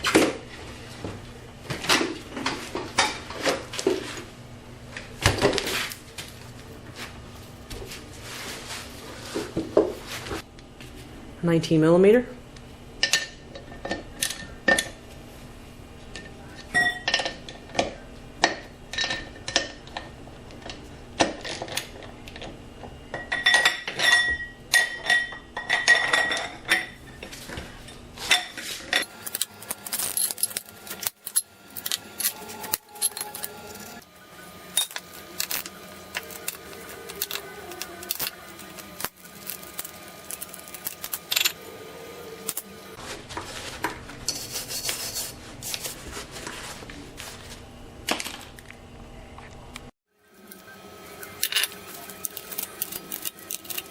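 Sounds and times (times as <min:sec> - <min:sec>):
metal hand tools clinking: 0:28.3 - 0:33.8.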